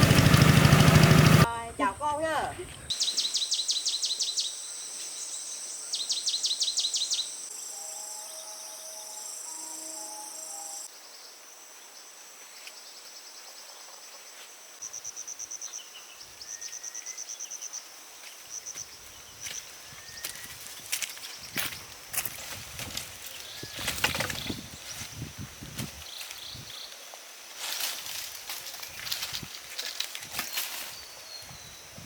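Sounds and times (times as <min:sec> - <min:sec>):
insects chirping in trills: 0:01.5 - 0:13.5, 0:14.1 - 0:32.0.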